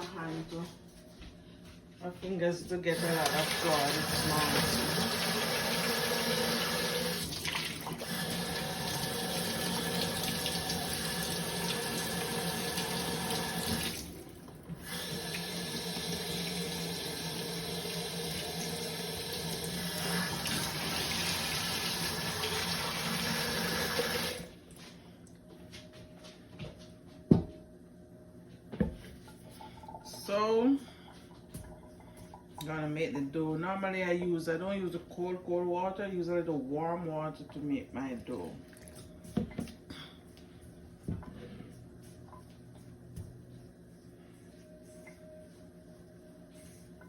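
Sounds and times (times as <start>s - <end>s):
tap water gushing: 2.9s - 24.5s.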